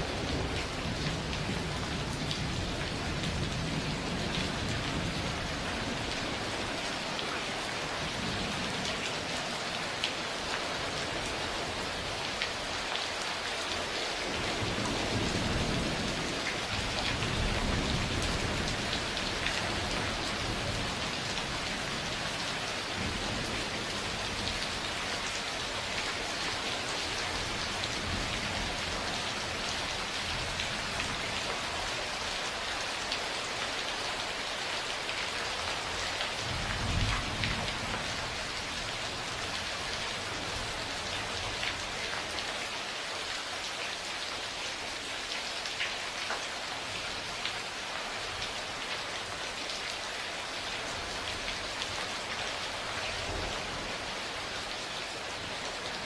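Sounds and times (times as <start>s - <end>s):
steady rain falling: 0.0s - 56.0s
low rumble of thunder: 36.4s - 38.9s.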